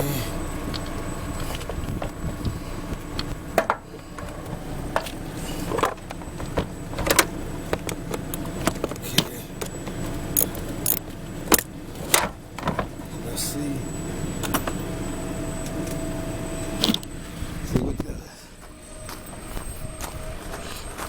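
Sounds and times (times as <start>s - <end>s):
hand tools clicking and clanking: 0.3s - 13.0s.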